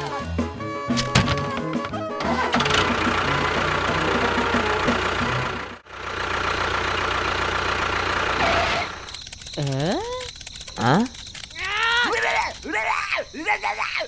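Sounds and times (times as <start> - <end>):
engine running with knocking beat: 1.2 - 9.0.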